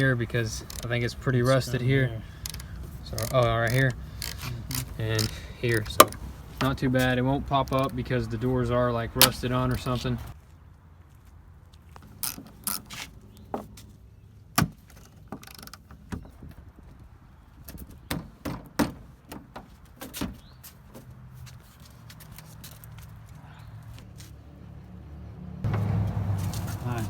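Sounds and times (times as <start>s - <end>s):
metal tool clicks and knocks: 2.4s - 6.3s.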